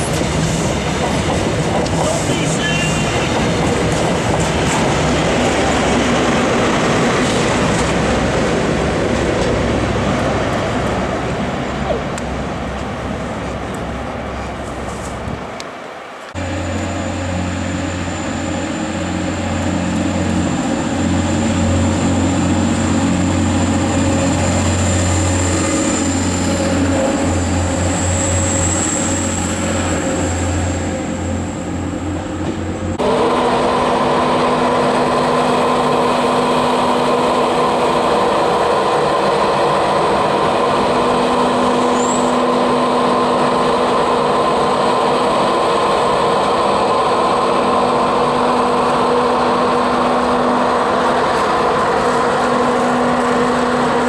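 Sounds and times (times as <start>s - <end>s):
train humming with held tones: 0.0s - 54.0s
diesel engine throbbing: 16.4s - 54.0s.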